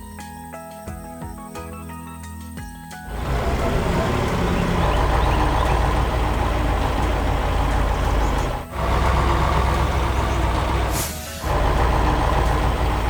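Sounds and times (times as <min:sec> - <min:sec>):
heavy truck engine rumbling: 0:03.1 - 0:13.0
short hiss: 0:10.9 - 0:11.6.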